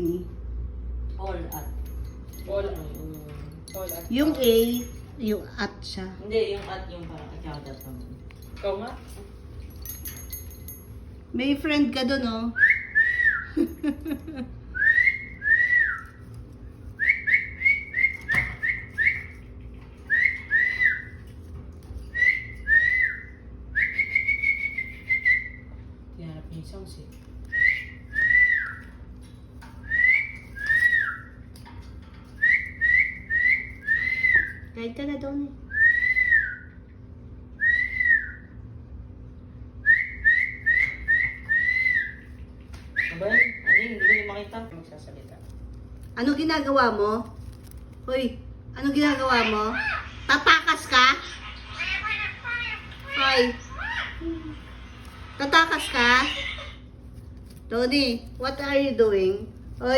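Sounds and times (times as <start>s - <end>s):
parrot whistling: 17.0s - 19.4s, 20.1s - 21.2s, 22.1s - 25.7s, 27.5s - 29.0s, 29.8s - 31.4s, 32.4s - 34.7s, 39.8s - 42.3s, 42.9s - 44.5s.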